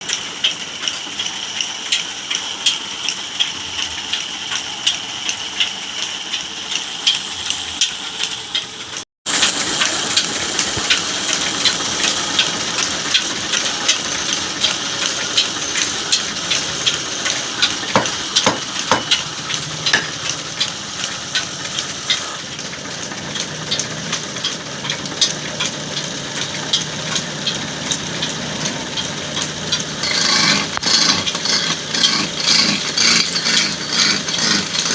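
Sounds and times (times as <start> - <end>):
tool rasping wood: 15.4 - 22.4, 26.3 - 34.9.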